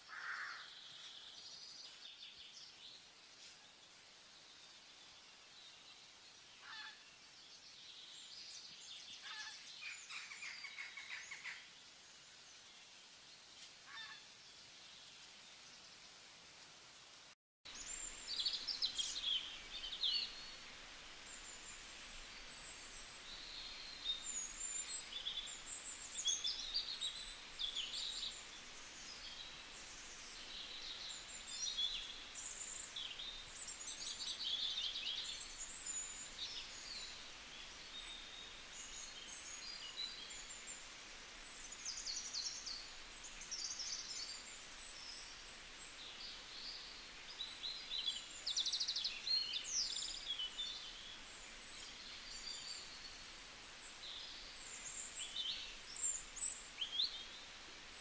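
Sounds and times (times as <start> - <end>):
faint outdoor hiss: 0.0 - 58.0
small birds chirping and trilling: 17.7 - 58.0.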